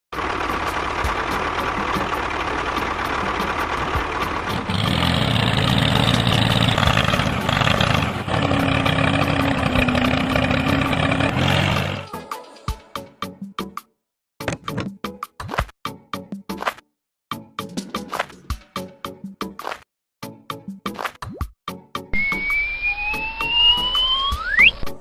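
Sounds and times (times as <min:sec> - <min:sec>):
engine running: 0:00.1 - 0:12.1.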